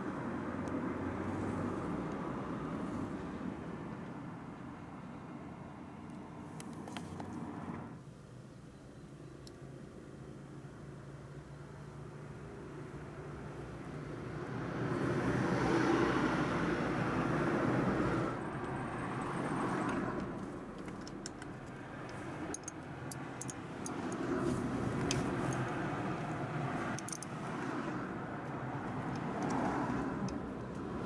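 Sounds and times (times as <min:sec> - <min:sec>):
vehicle passing by: 0:13.3 - 0:20.8, 0:23.7 - 0:31.0.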